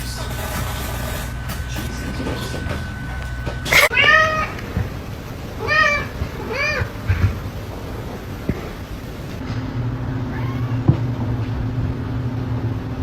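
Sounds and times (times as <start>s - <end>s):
cat meowing: 3.7s - 4.6s, 5.6s - 7.4s, 10.1s - 11.1s.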